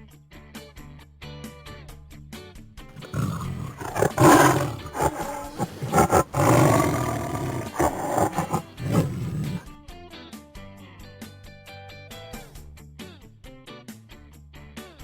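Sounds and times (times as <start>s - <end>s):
tiger roaring and growling: 3.0s - 9.6s.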